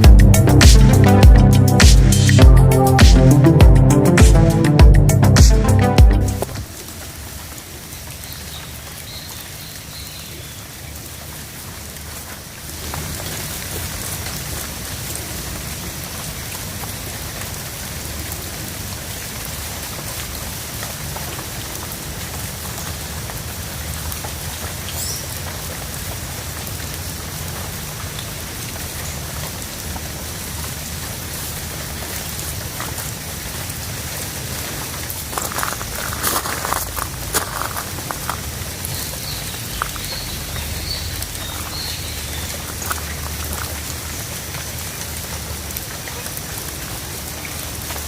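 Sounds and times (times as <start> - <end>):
low rumble: 0.0 - 6.7
short louder sounds: 0.0 - 6.8
steady rain falling: 0.0 - 48.0
raindrop ticks: 34.8 - 48.0.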